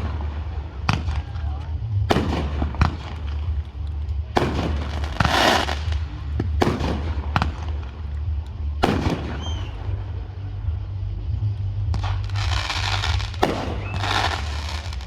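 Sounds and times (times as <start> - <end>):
firework booms: 0.0 - 8.0, 8.8 - 10.1, 11.9 - 15.0
firework crackles: 0.0 - 10.8, 11.9 - 15.0
low rumble: 0.0 - 15.0
firework whistle: 8.8 - 10.0, 12.0 - 15.0.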